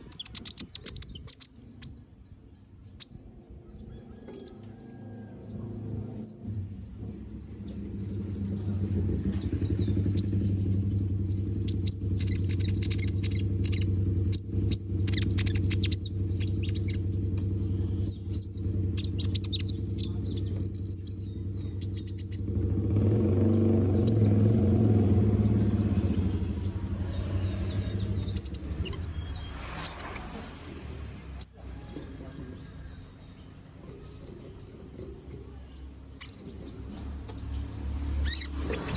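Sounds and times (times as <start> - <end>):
bird rapid high chirps: 0.0 - 2.0, 6.2 - 6.4, 7.6 - 22.5, 23.1 - 31.6, 35.4 - 38.9.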